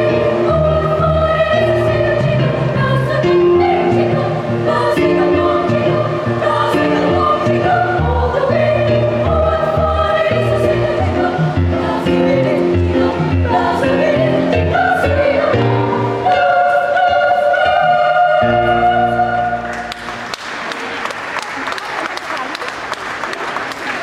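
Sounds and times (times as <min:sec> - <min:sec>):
children's choir singing: 0:00.0 - 0:20.3
audience applause: 0:19.7 - 0:24.0.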